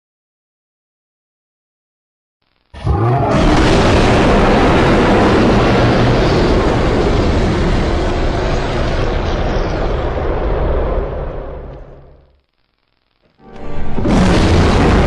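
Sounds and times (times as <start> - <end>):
long loud noisy roar: 2.8 - 8.3.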